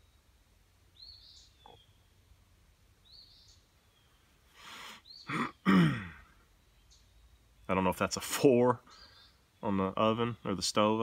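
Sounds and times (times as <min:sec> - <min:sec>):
faint outdoor background noise: 0:00.0 - 0:11.0
bird rising chirp: 0:00.9 - 0:02.2
man breathing in: 0:04.5 - 0:05.1
man short vocal sounds: 0:05.3 - 0:06.3.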